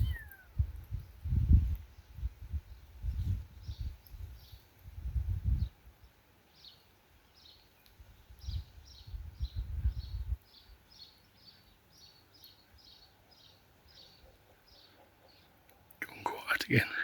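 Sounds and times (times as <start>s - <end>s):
small animal chirping: 0.0s - 0.6s.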